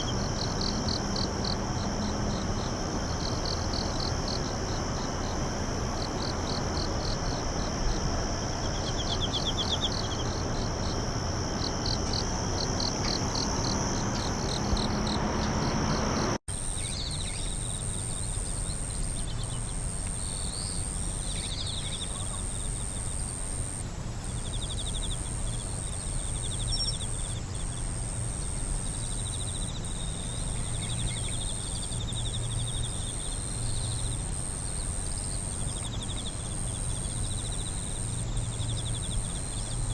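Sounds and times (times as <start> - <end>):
constant hiss: 0.0 - 39.9
crickets chirping: 0.0 - 39.9
high steady insect whine: 0.0 - 39.9
insects trilling: 0.0 - 39.9.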